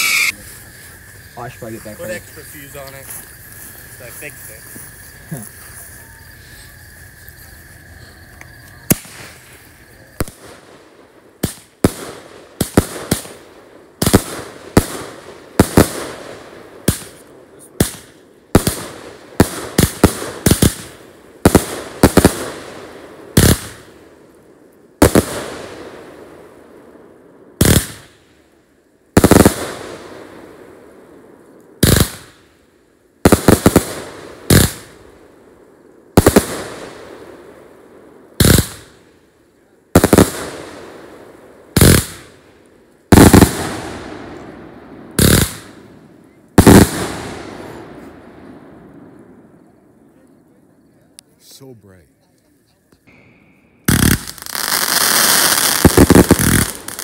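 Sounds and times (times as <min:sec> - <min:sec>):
fireworks bursting with echo: 0:00.0 - 0:00.7, 0:08.7 - 0:32.6, 0:33.2 - 0:50.1, 0:53.0 - 0:57.0.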